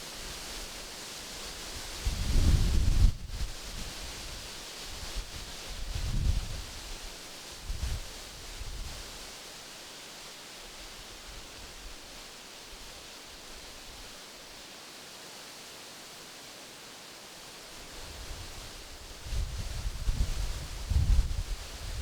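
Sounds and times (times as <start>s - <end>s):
wind rustling tree leaves: 0.0s - 22.0s
wind buffeting microphone: 19.2s - 22.0s.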